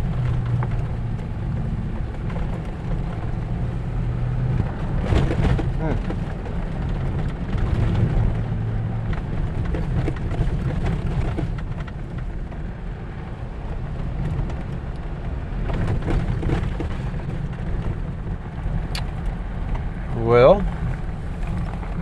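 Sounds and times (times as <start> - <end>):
vehicle engine and road rumble: 0.0 - 22.0
clicks and rattles: 9.1 - 12.3, 15.7 - 19.9.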